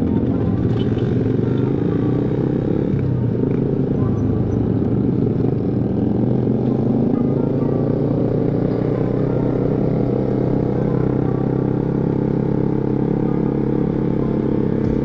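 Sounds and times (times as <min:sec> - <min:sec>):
scooter engine cruising: 0:00.0 - 0:15.0.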